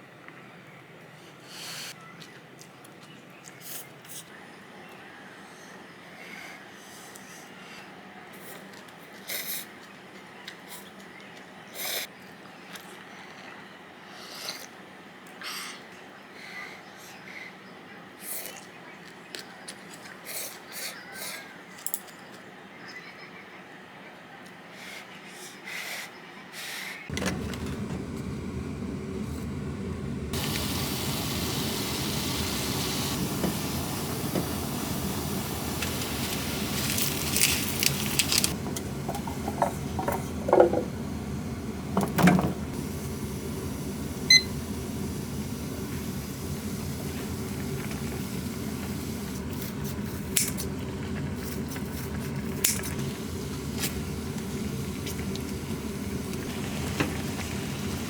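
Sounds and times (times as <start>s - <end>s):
kitchen appliance motor humming: 27.1s - 58.0s
hiss: 29.2s - 50.8s, 52.1s - 58.0s.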